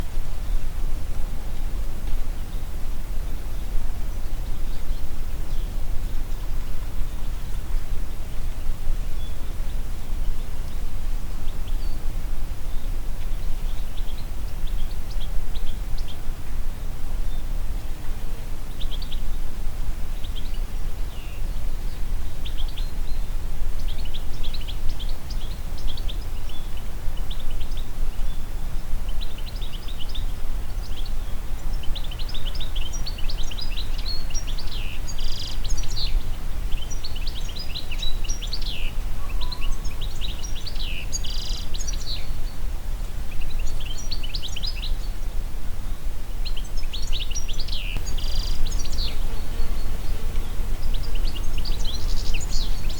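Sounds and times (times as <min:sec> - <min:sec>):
songbirds chirping and trilling: 0:20.1 - 0:52.9
wind rumble: 0:48.0 - 0:52.9.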